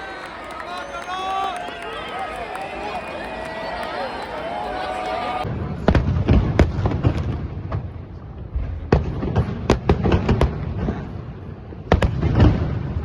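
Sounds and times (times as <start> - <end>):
fireworks bangs: 3.6 - 13.0.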